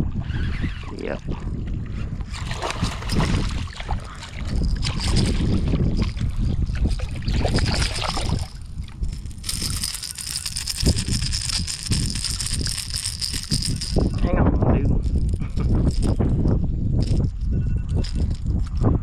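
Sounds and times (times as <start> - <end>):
wind buffeting microphone: 0.0 - 19.0
water sloshing against kayak hull: 1.3 - 9.1.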